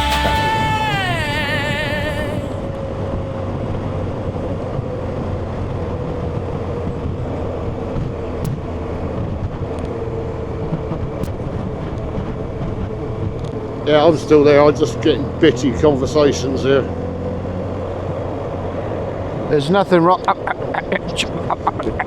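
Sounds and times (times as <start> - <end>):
sung note of a song: 0.0 - 2.6
wind and road noise: 0.9 - 22.0.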